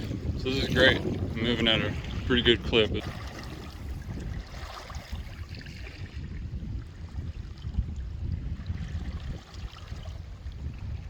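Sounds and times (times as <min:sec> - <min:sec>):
water rushing along a hull: 0:00.0 - 0:11.0
wind buffeting microphone: 0:00.0 - 0:11.0.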